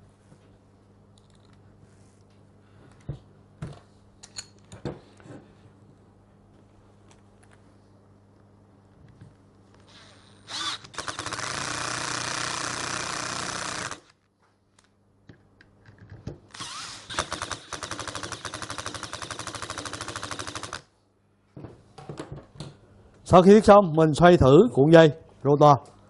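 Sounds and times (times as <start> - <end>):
power screwdriver driving screws: 9.9 - 14.1, 16.5 - 20.8.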